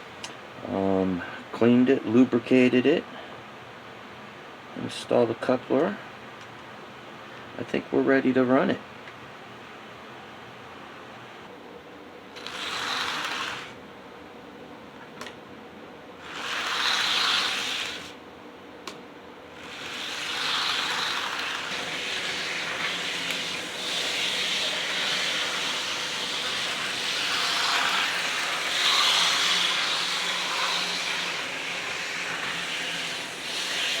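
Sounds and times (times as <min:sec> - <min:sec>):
model train running on track: 0:19.8 - 0:34.0.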